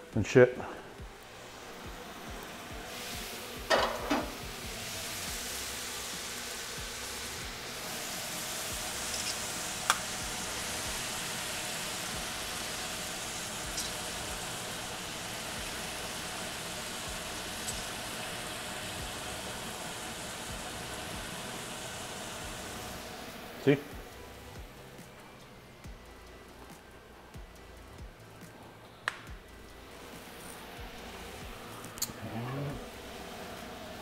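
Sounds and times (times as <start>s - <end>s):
chicken sizzling in a pan: 1.2s - 23.9s.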